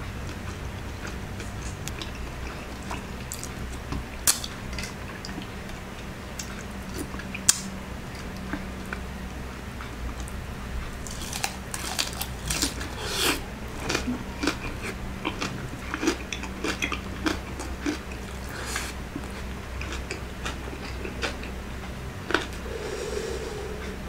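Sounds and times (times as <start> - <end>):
crunching crispy fried food: 0.3 - 5.7, 11.0 - 21.6.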